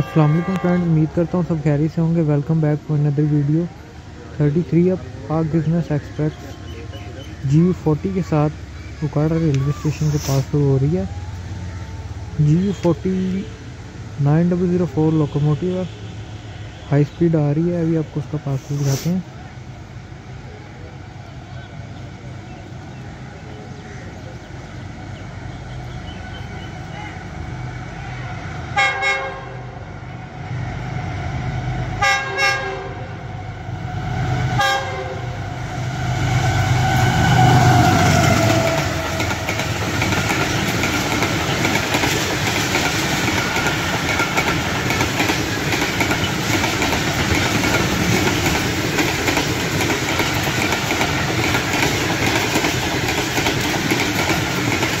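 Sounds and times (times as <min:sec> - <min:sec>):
train horn blasts: 0:00.0 - 0:01.0, 0:28.8 - 0:29.8, 0:32.0 - 0:33.2, 0:34.6 - 0:35.4
diesel locomotive engine passing: 0:00.0 - 0:55.0
train wheels clacking on rails: 0:36.8 - 0:55.0.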